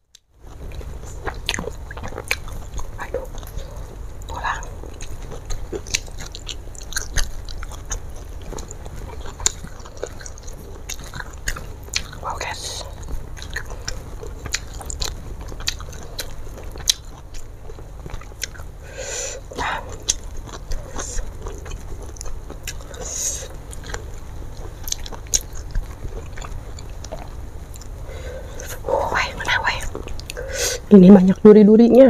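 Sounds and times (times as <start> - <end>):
person chewing with wet mouth clicks: 0.1 - 18.7, 19.3 - 30.5
breathy sounds: 18.8 - 20.0, 28.0 - 29.6, 30.3 - 30.9.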